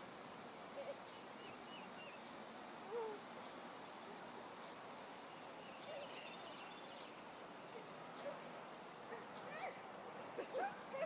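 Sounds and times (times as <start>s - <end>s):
steady outdoor hiss: 0.0s - 11.0s
faint bird calls: 5.3s - 8.5s.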